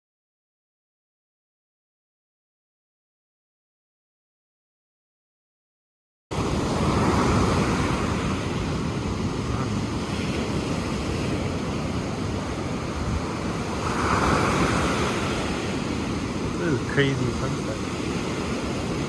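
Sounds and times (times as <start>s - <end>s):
ocean surf: 6.3s - 19.0s
wind buffeting microphone: 6.3s - 19.0s.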